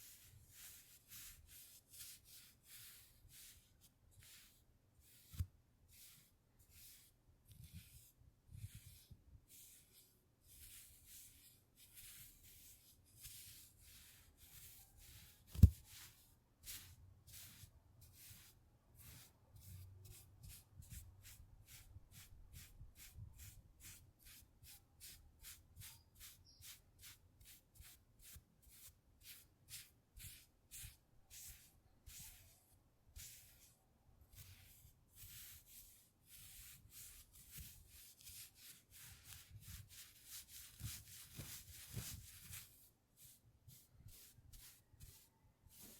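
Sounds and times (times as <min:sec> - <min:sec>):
scratching strokes on a surface: 0:00.0 - 0:45.9.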